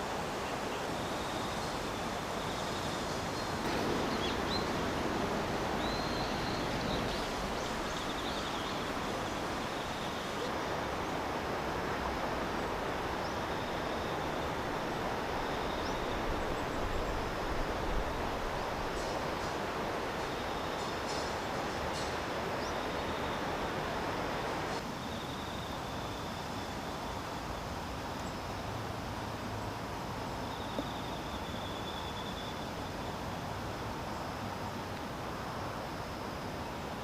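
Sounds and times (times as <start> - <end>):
faint insect trills: 0.0 - 37.0
outdoor rushing noise: 3.6 - 8.0.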